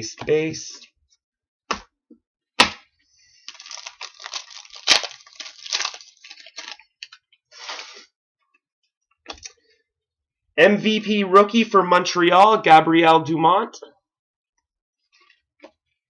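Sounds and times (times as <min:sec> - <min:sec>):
wrapper crinkling and tearing: 0:03.4 - 0:07.2.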